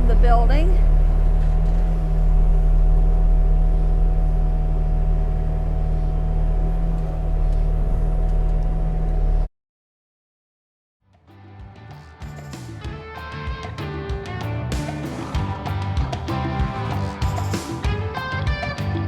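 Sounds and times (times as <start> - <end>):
engine humming: 0.0 - 9.5, 12.2 - 19.0
thin steady whine: 0.0 - 9.5.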